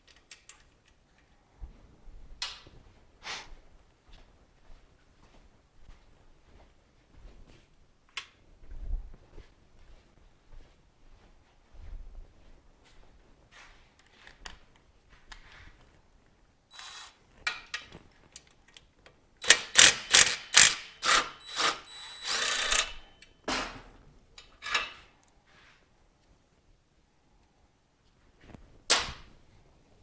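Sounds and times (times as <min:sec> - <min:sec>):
ratchet rasping: 0:19.4 - 0:23.0
hand tools clicking and scraping: 0:19.4 - 0:23.8, 0:24.4 - 0:25.3.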